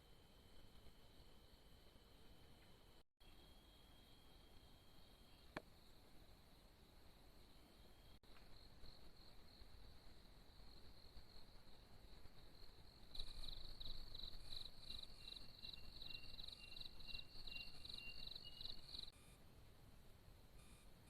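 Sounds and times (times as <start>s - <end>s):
pulsing insect chirp: 0.0s - 19.4s, 20.6s - 21.0s
thin steady tone: 0.0s - 21.0s
insects trilling: 7.4s - 19.2s.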